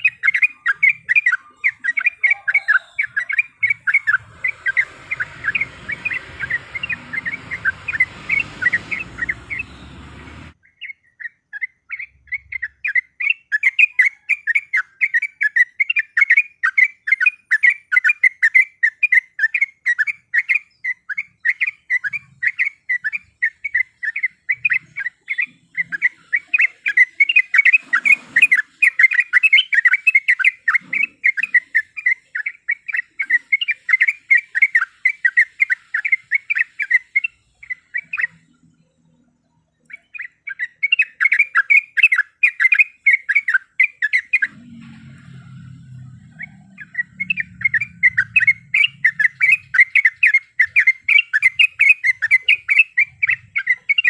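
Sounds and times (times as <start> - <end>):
bird chattering calls: 0.0 - 11.3, 46.1 - 54.0.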